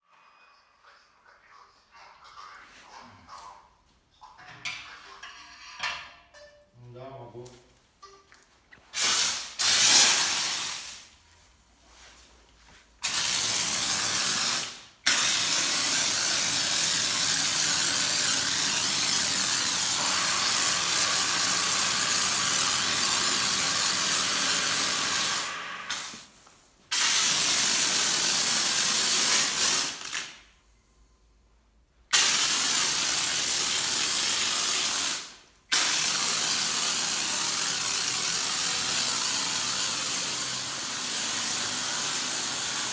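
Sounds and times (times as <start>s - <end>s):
pressure washer spraying water: 8.9s - 11.1s, 13.0s - 30.3s, 32.1s - 42.9s.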